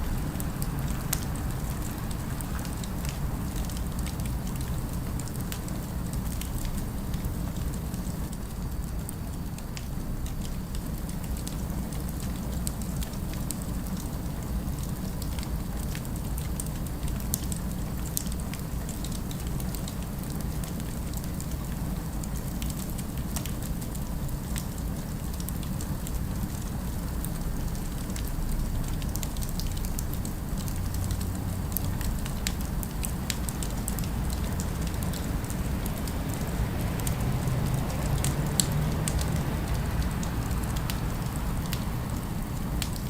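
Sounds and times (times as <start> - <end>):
fire crackling: 0.0 - 43.0
low city ambience rumble: 0.0 - 43.0.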